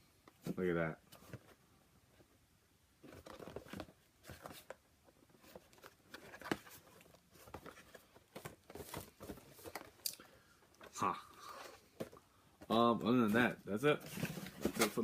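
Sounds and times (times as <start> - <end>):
packaging rustling: 3.0 - 12.2.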